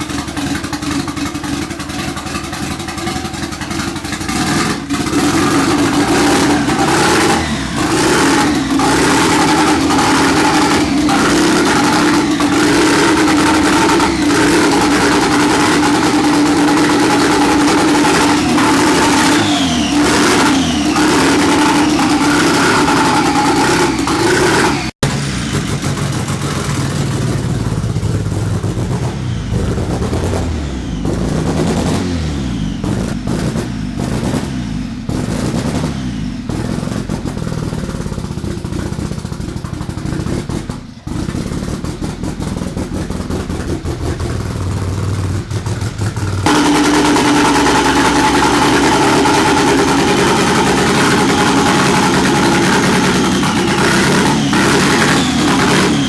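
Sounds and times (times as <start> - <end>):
car engine running at raised revs: 0.0 - 56.0
engine clattering: 0.0 - 56.0.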